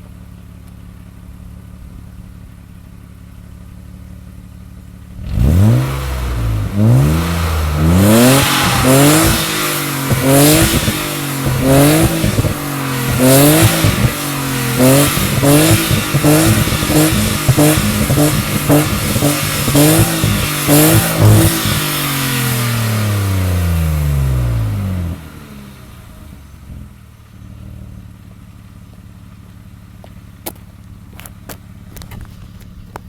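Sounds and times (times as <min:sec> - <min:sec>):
car engine revving: 0:05.0 - 0:28.1.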